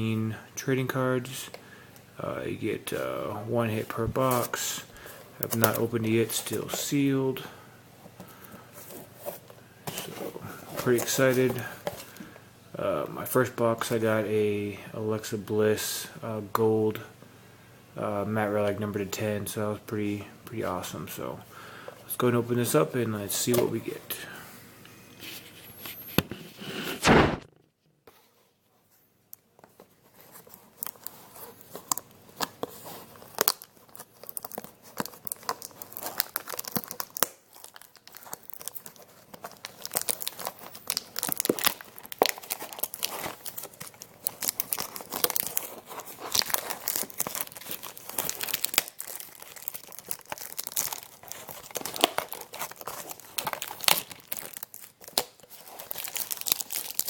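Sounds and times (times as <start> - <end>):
loud thump: 27.0 - 27.5
plastic wrap tearing and crinkling: 30.0 - 57.0.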